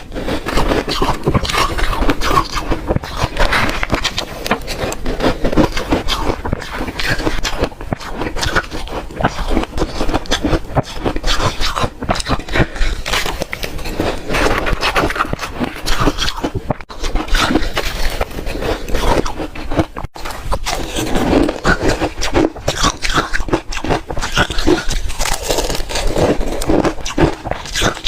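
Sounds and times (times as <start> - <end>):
person crunching ice: 0.0 - 28.0.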